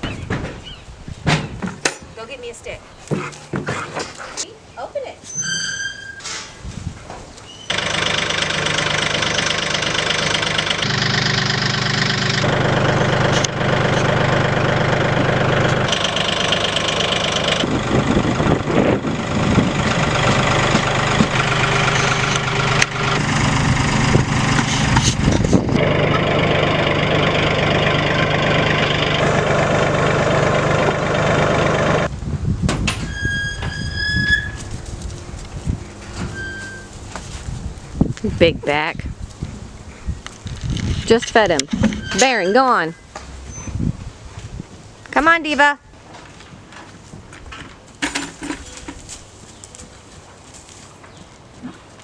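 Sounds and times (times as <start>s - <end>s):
vehicle engine running: 7.7s - 32.1s, 34.6s - 37.9s.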